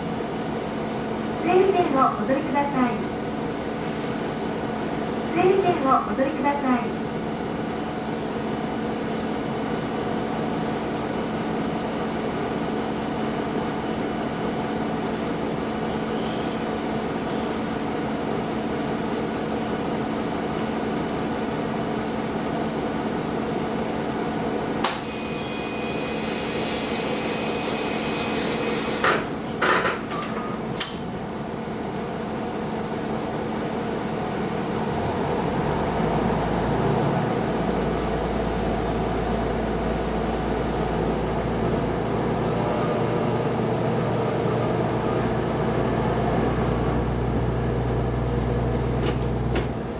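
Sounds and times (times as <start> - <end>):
diesel railcar engine idling: 29.2 - 49.9.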